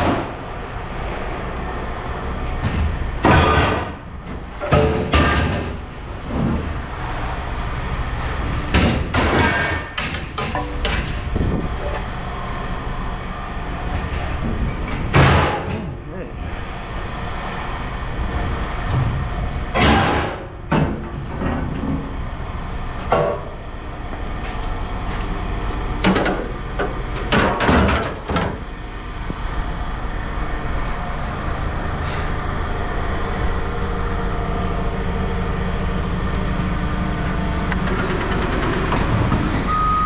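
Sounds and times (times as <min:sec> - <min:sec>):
vehicle engine running: 0:00.0 - 0:40.0
loud knocks and clatters: 0:02.6 - 0:06.8, 0:08.5 - 0:11.5, 0:14.0 - 0:15.9, 0:18.8 - 0:22.2, 0:26.0 - 0:28.7, 0:37.8 - 0:39.6.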